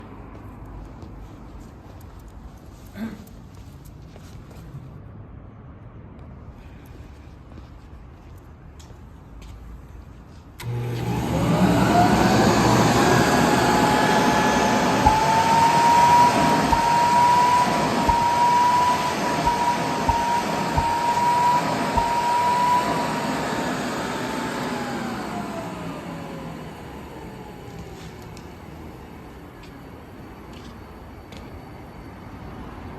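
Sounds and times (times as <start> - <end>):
dust collector motor whining: 10.6 - 32.1.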